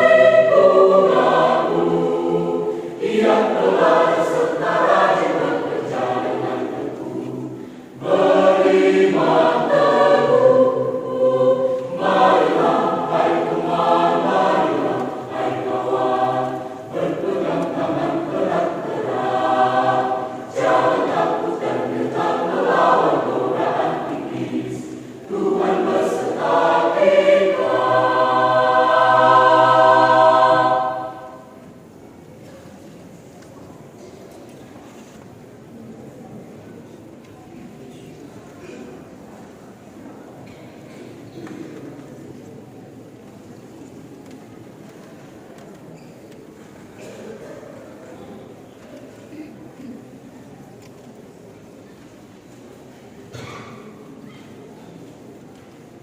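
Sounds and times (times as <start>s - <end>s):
church choir singing: 0.0s - 32.1s.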